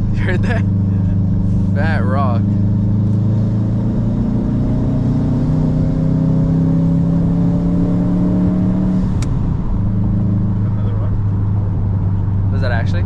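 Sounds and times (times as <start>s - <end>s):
sharp click: 9.2s - 9.4s.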